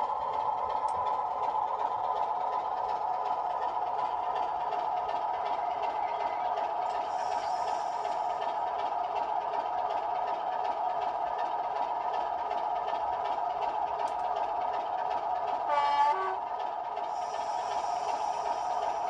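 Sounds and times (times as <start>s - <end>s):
model locomotive engine sound: 0.0s - 19.0s
two-tone horn blast: 15.7s - 16.4s.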